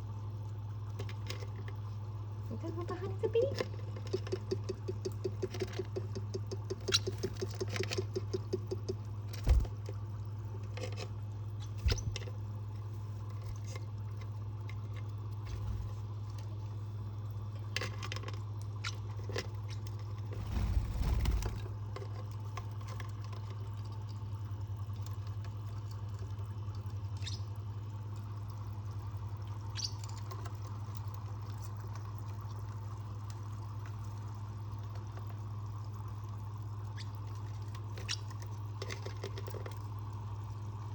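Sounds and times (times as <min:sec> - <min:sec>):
small taps clicks and scratches: 0:03.5 - 0:09.1
steady low hum: 0:09.1 - 0:17.8, 0:20.0 - 0:22.0
quick run of pulses: 0:20.4 - 0:21.8.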